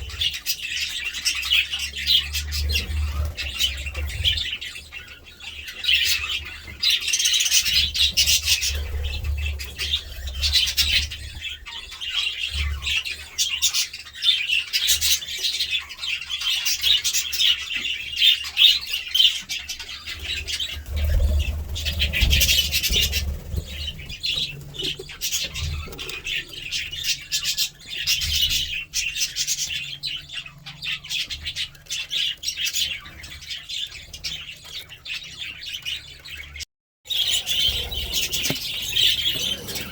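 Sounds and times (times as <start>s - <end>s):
budgerigars chattering and warbling: 0.0s - 39.9s.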